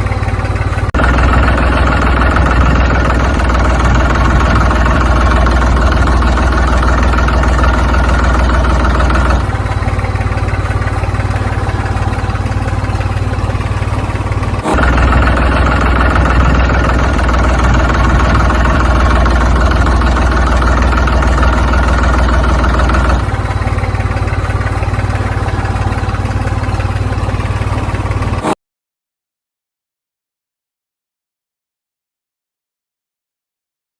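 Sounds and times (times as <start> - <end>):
engine idling: 0.0 - 28.6.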